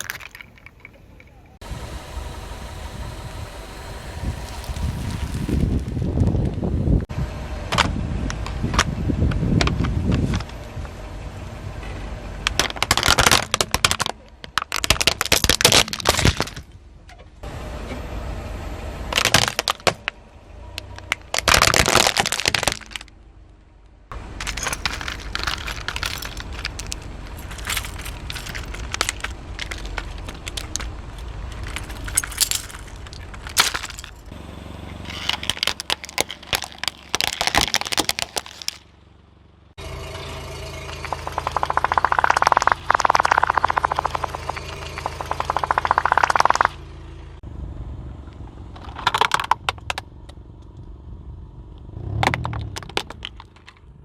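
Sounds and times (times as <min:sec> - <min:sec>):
things crushed under car tyre: 0:00.0 - 0:01.2, 0:04.1 - 0:06.5, 0:12.5 - 0:16.8, 0:19.1 - 0:20.2, 0:20.8 - 0:23.2, 0:24.1 - 0:39.0, 0:52.0 - 0:53.9.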